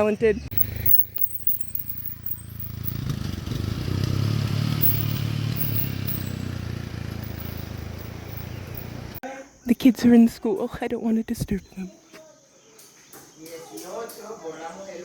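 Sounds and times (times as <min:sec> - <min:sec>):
motorcycle engine passing: 0:00.6 - 0:09.2.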